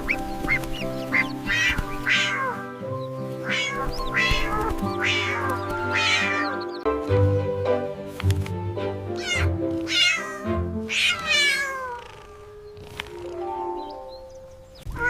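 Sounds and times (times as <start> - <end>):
background music with held notes: 0.0 - 15.0
cat meowing: 1.5 - 2.8, 3.4 - 6.6, 9.1 - 12.5.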